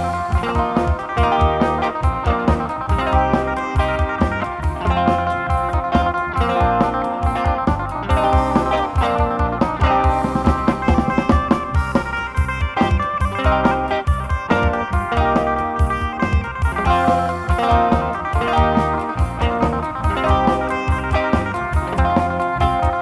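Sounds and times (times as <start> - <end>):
drum kit: 0.0 - 23.0
electric plucked lute melody: 0.0 - 23.0.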